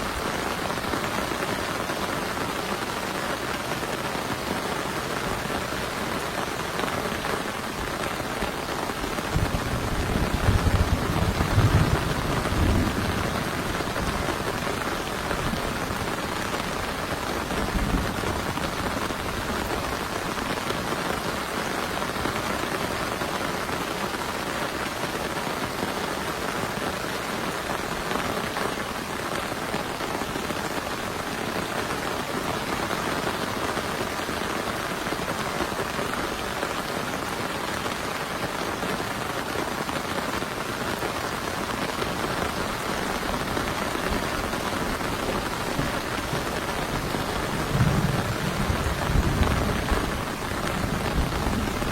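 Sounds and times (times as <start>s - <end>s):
heavy rain: 0.0s - 51.9s
thunder rumble: 9.3s - 16.5s, 17.4s - 18.9s, 43.1s - 51.9s.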